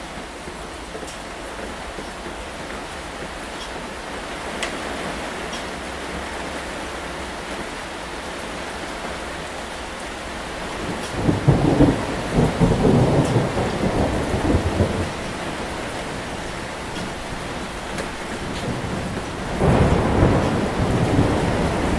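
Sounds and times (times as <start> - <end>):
steady rain falling: 0.0 - 21.9
thunder rumbling: 9.6 - 21.9.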